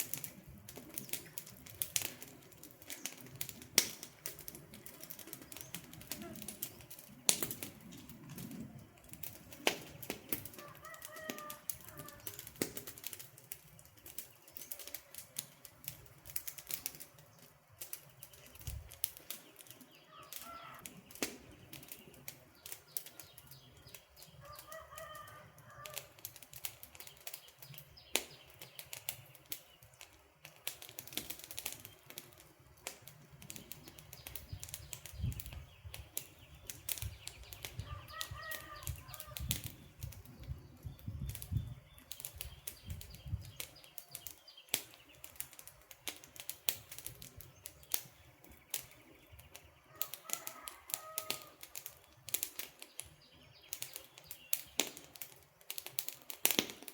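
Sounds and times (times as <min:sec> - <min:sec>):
campfire crackling and popping: 0:00.0 - 0:56.9
bird calling: 0:20.0 - 0:21.0, 0:37.3 - 0:39.5.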